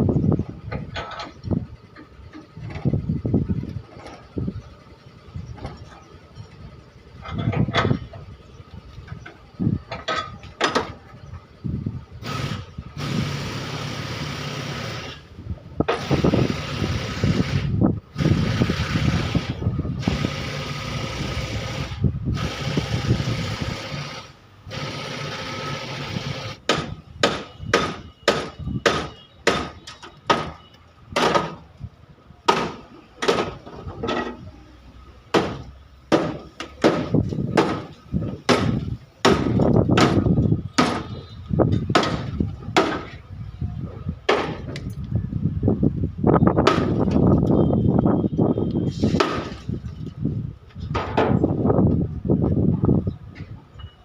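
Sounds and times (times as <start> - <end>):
hammer blows on metal: 26.7 - 30.6.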